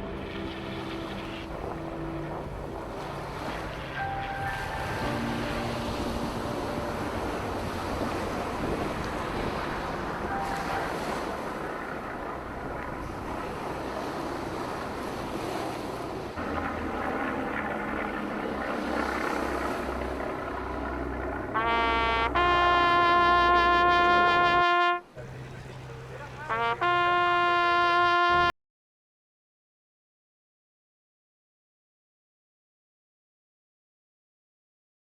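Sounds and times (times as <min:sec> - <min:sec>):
wind buffeting microphone: 0:00.0 - 0:21.5
brass instrument long note: 0:21.5 - 0:25.1, 0:26.5 - 0:28.5.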